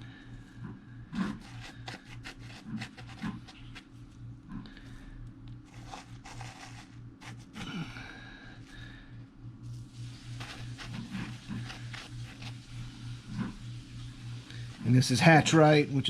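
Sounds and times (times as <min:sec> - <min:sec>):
fingers rustling in gritty granules: 0:01.2 - 0:04.1, 0:05.6 - 0:07.7, 0:10.0 - 0:13.5.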